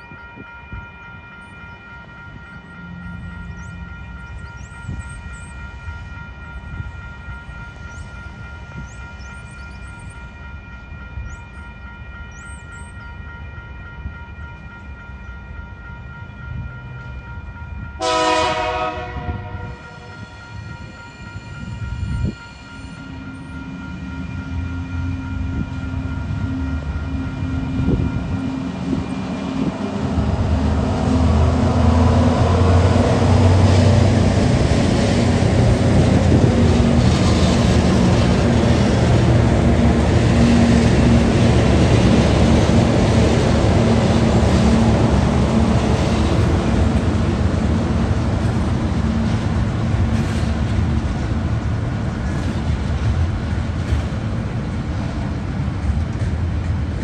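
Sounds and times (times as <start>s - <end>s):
diesel locomotive engine hum: 0.0s - 57.0s
wagon wheels rumbling on rail: 14.9s - 57.0s.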